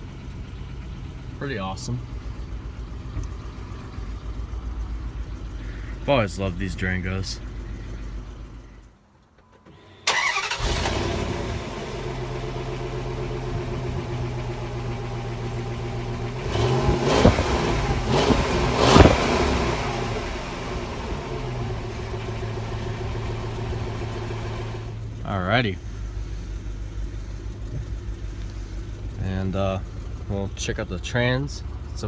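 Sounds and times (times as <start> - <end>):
engine idling: 0.0 - 32.0
engine starting: 9.4 - 11.6
engine revving: 10.1 - 25.0.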